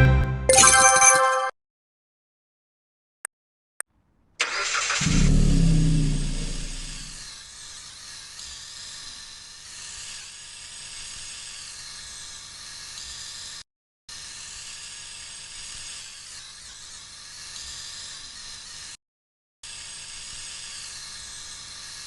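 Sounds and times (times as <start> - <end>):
pressure washer spraying: 4.4 - 7.3.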